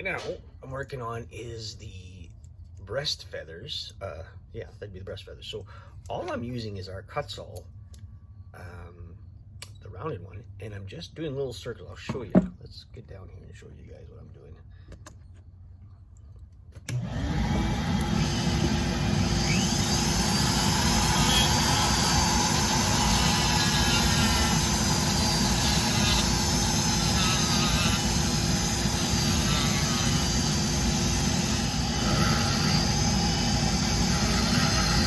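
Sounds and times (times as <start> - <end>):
rotary tool grinding wood: 16.9 - 35.0.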